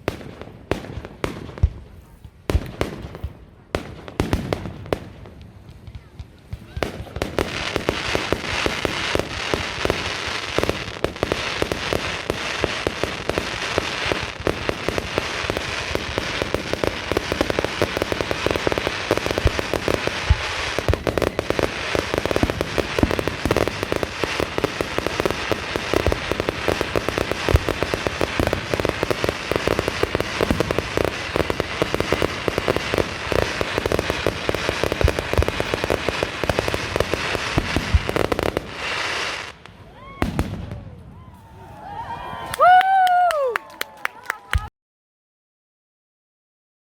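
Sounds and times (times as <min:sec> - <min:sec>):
fireworks banging and crackling: 0:00.0 - 0:41.4.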